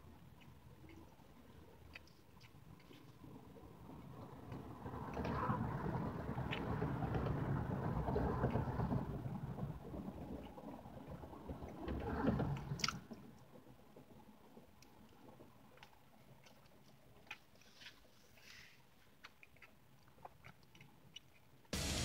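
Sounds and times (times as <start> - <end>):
chewing soft food: 0.0 - 4.7, 14.8 - 21.7.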